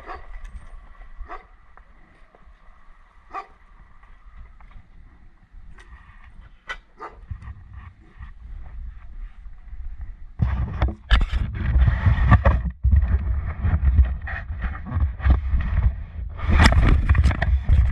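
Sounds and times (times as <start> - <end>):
wind buffeting on microphone: 0.0 - 17.9
knocks and rattles: 16.5 - 17.9.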